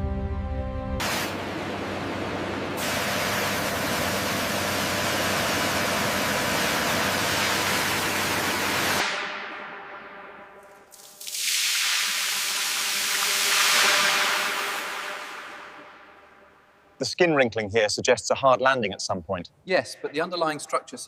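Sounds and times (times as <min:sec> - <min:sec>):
spraying hiss: 0:01.0 - 0:01.4.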